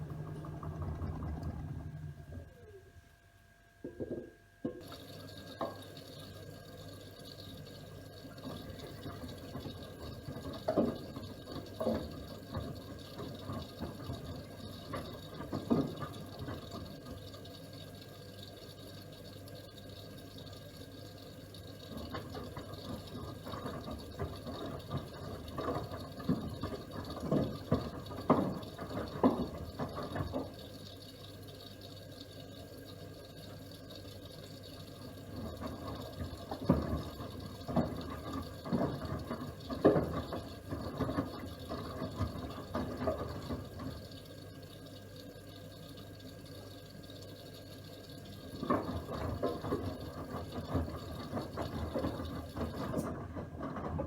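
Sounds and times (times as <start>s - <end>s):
washing machine low hum: 0.0s - 54.0s
laundry sloshing in drum: 8.3s - 17.4s, 21.8s - 30.8s, 34.8s - 44.2s, 48.4s - 54.0s.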